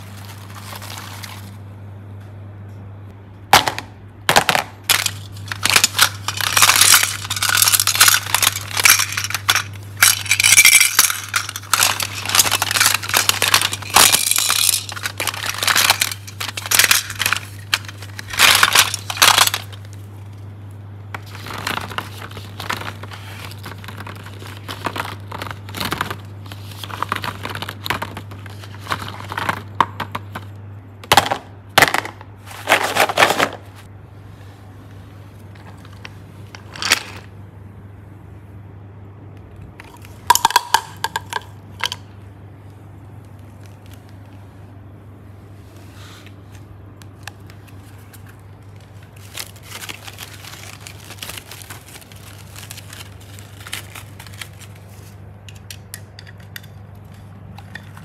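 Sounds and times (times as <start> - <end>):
steady low hum: 0.0 - 58.0
plastic containers clattering: 3.5 - 19.9, 21.1 - 33.9, 39.8 - 42.1, 47.2 - 58.0.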